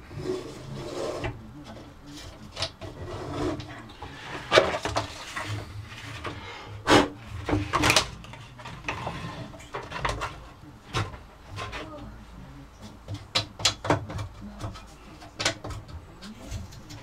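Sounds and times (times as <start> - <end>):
metal parts knocking and scraping: 1.2 - 11.9.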